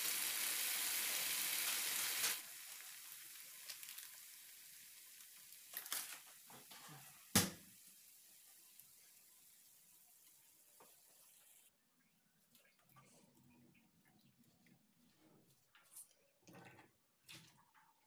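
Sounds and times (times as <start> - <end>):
food sizzling in a frying pan: 0.0 - 11.7.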